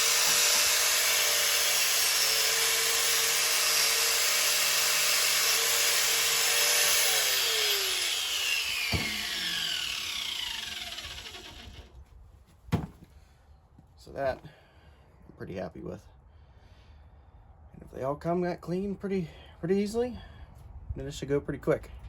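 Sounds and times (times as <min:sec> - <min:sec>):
power tool whining: 0:00.0 - 0:12.0.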